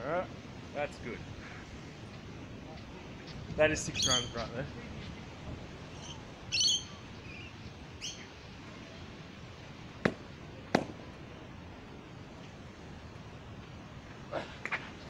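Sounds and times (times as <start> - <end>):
outdoor hiss: 0.0 - 15.0
bird chirps: 3.2 - 4.4, 5.9 - 8.3
bird squawking: 3.9 - 4.4, 6.0 - 8.3.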